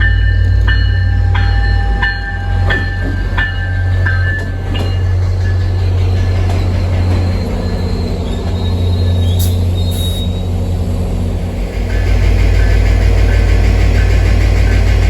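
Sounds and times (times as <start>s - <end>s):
bell dinging: 0.0s - 5.6s
train rumbling past: 0.0s - 15.0s.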